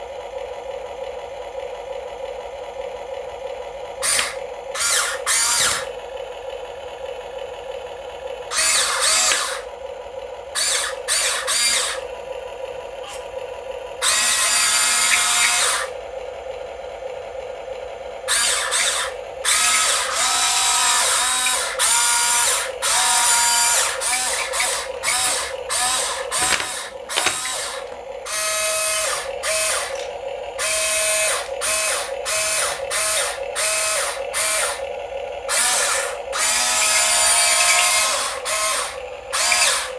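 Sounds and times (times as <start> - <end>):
small electric motors whirring: 4.0 - 6.0, 8.5 - 9.8, 10.5 - 12.2, 13.0 - 13.4, 14.0 - 16.0, 18.2 - 39.9.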